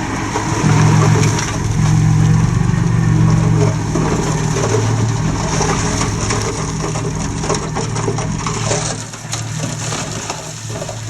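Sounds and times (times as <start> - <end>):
bulldozer diesel engine under load: 0.0 - 11.0.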